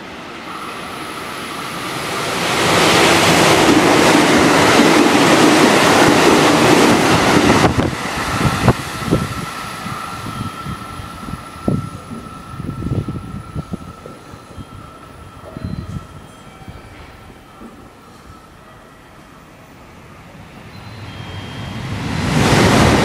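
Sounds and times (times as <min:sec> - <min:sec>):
train passing at speed: 0:00.0 - 0:23.0.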